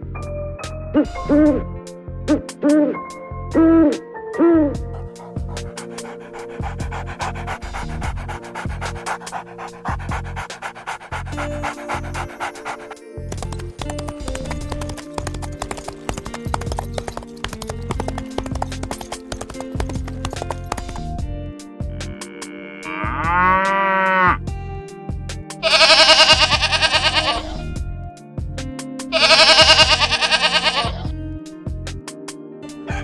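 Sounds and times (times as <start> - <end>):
background music: 0.0 - 33.0
wavering animal calls: 4.9 - 13.1, 25.6 - 27.7, 29.2 - 31.0.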